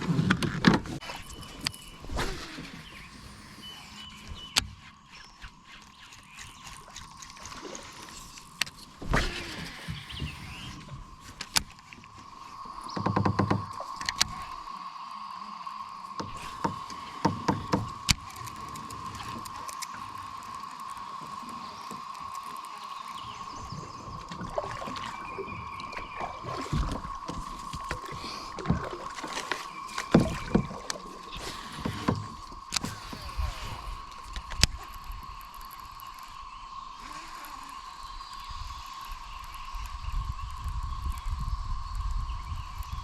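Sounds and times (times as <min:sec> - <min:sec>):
paddle knocking against hull: 0:12.7 - 0:14.4, 0:16.2 - 0:18.4, 0:24.3 - 0:33.4.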